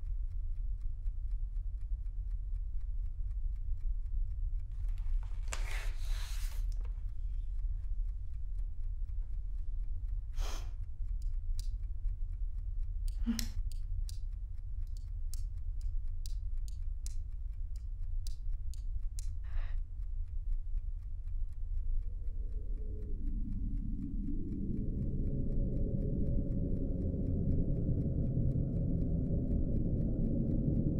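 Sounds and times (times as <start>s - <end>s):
clock ticking: 0.0s - 30.9s
low hum: 0.0s - 30.9s
low tone: 19.3s - 30.9s.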